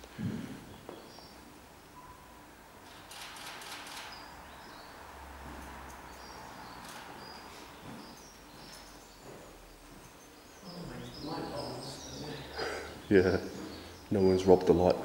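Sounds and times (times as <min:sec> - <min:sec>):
small bird chirping: 0:06.1 - 0:09.3.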